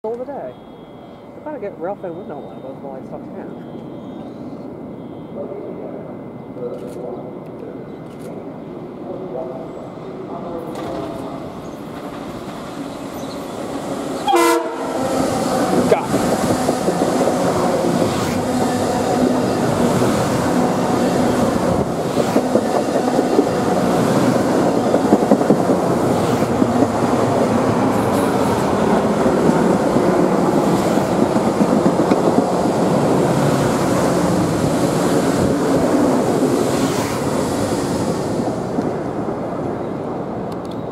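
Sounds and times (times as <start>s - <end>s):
train wheels rumbling on rail: 6.6s - 40.9s
train horn blast: 14.2s - 15.5s.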